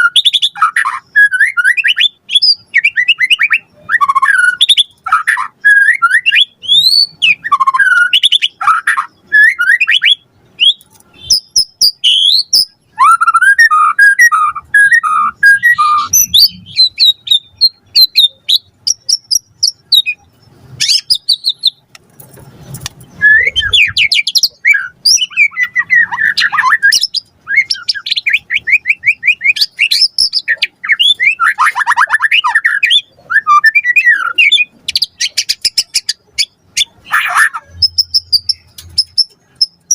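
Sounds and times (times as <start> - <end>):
songbird singing whistled phrases: 0.0 - 21.8, 23.1 - 39.9.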